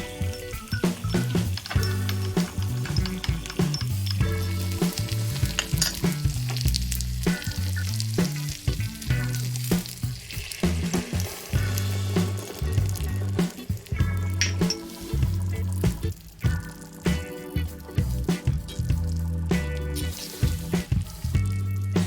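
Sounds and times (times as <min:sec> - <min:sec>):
food sizzling in a pan: 0:00.0 - 0:15.3
stirring clicks: 0:00.0 - 0:17.3
background music with bass line: 0:00.0 - 0:22.0.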